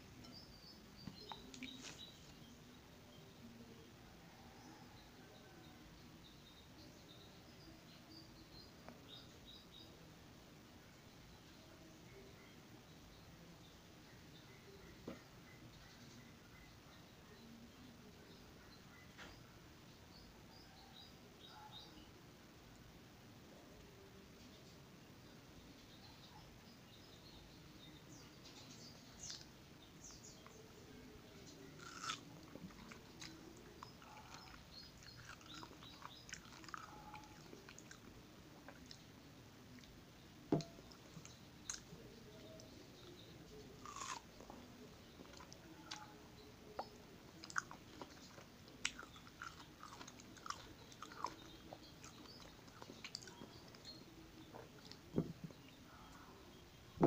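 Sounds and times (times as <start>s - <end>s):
chewing soft fruit: 28.6s - 57.0s.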